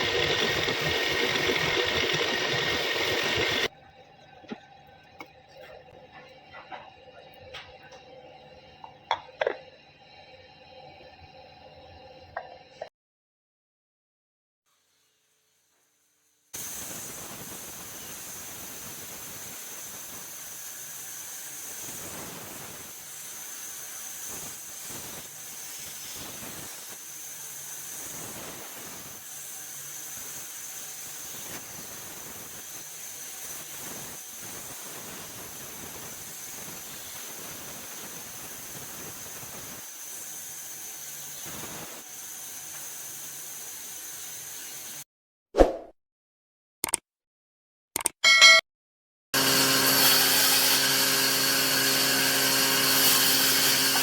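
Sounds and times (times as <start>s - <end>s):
wood lathe cutting wood: 0.0s - 3.7s, 49.4s - 54.0s.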